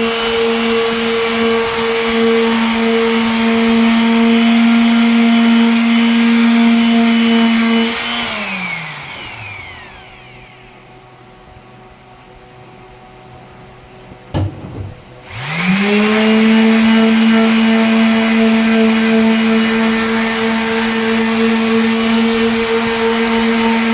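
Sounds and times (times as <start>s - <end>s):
electric sander motor: 0.0s - 14.0s, 15.1s - 23.9s
short knocks: 13.6s - 15.2s.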